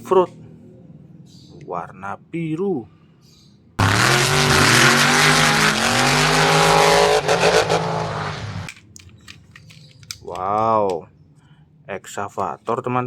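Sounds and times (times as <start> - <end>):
tire squeal effect: 3.8 - 8.7
toy car engine revving effect: 3.8 - 8.7.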